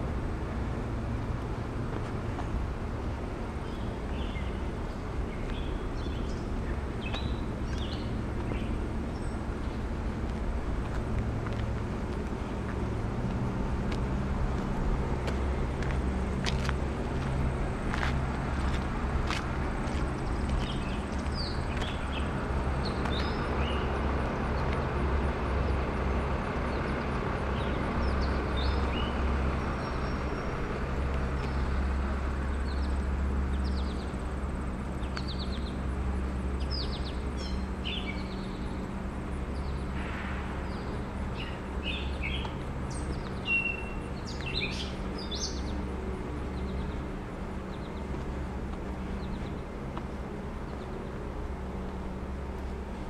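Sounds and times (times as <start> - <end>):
low outdoor hum: 0.0 - 53.0
songbirds chirping: 0.4 - 53.0.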